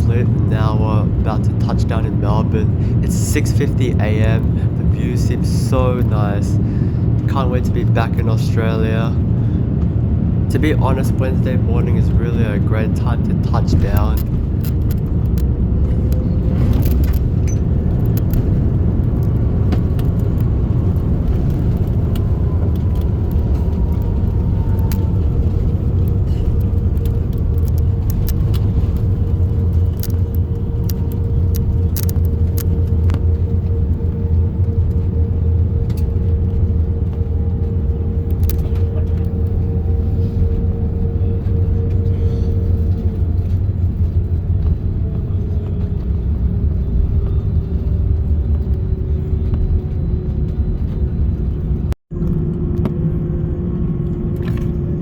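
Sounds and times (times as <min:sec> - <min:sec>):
low rumble of airflow and engines: 0:00.0 - 0:55.0
mid-pitched engine whine: 0:00.0 - 0:55.0
small clicks and rattles: 0:13.9 - 0:33.8.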